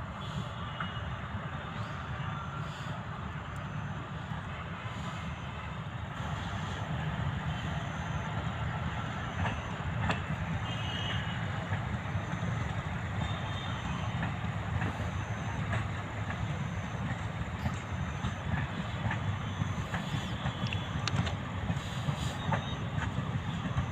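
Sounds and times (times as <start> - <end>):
train rumbling on track: 0.0 - 23.9
sharp track clicks: 9.4 - 10.5, 14.1 - 21.8.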